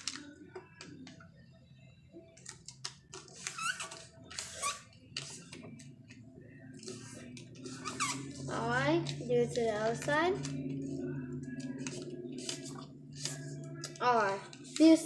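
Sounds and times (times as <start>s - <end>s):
finger squeaking along paper: 3.4s - 4.9s, 7.8s - 8.4s
paper being folded: 11.5s - 15.0s.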